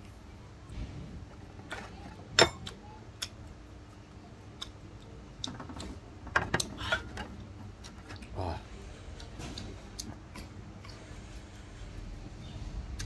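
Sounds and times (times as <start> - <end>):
person chewing crisp food: 9.1 - 11.5.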